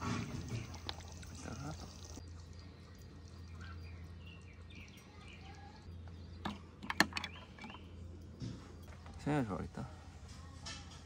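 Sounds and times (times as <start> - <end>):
low steady hum: 0.1 - 11.0
faint bird chirps: 2.2 - 6.4.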